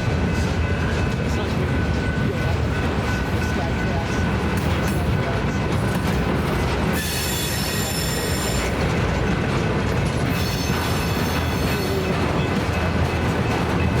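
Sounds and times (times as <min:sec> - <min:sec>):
train wheels rumbling on rail: 0:00.0 - 0:14.0
high-pitched wheel squeal: 0:06.9 - 0:08.8, 0:10.3 - 0:12.0.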